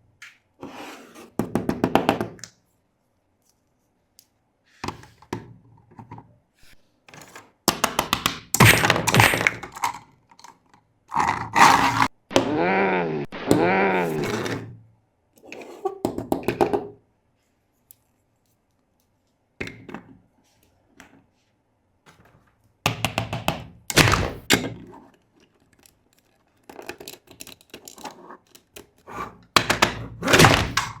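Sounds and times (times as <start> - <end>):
plastic toys clicking and knocking: 7.2 - 12.1, 22.1 - 31.0.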